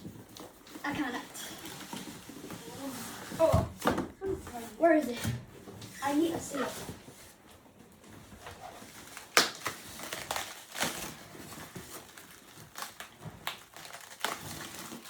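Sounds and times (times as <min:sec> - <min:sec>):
packaging rustling and crinkling: 0:00.0 - 0:03.9, 0:04.5 - 0:15.0
sharp packaging crunch: 0:09.0 - 0:15.0.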